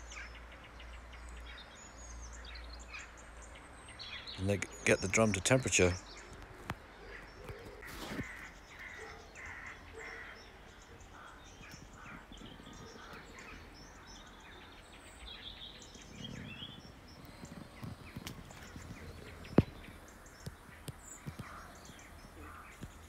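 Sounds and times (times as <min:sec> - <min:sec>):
birds harsh calls: 0:00.0 - 0:23.0
high bird chirps: 0:07.2 - 0:23.0.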